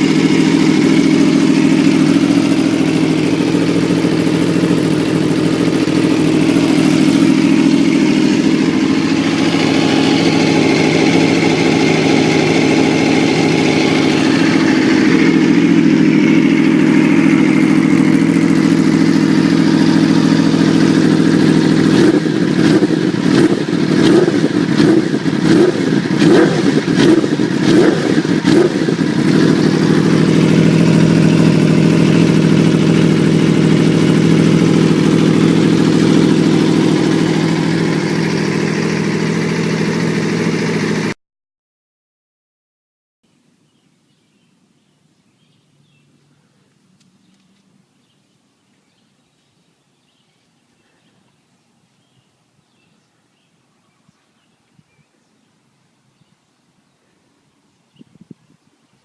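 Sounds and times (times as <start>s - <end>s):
motorcycle engine idling and revving: 0.0s - 41.2s.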